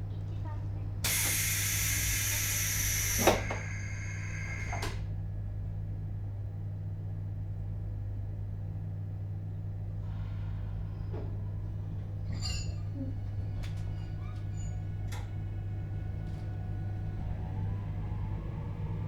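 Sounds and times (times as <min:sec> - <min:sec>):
train equipment humming: 0:00.2 - 0:05.2, 0:10.2 - 0:19.0
compressed air hissing: 0:01.1 - 0:05.0.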